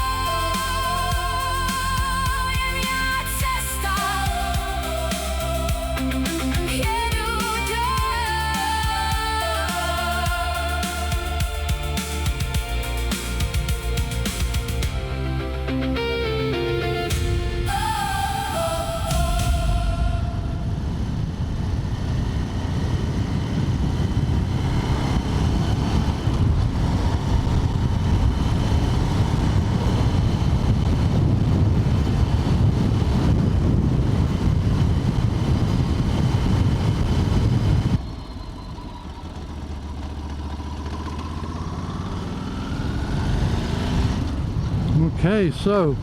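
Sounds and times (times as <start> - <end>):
motorcycle engine: 0.0 - 45.1
wind rush: 17.0 - 38.2.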